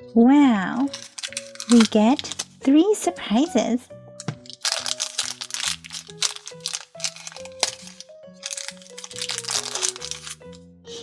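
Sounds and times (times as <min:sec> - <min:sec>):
light background music: 0:00.0 - 0:11.0
plastic wrapping crinkling: 0:00.8 - 0:02.6, 0:04.4 - 0:10.6.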